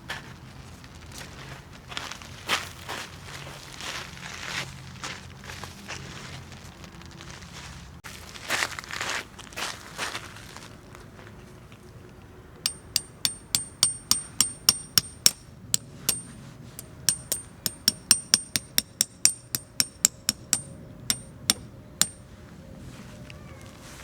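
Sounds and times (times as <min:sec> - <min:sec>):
hammer blows on metal: 0:12.7 - 0:22.4.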